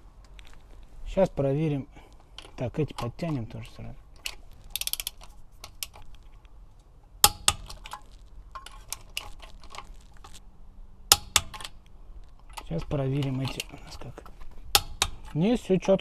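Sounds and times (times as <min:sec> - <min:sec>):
torque wrench ratchet ticks: 0:04.7 - 0:05.2.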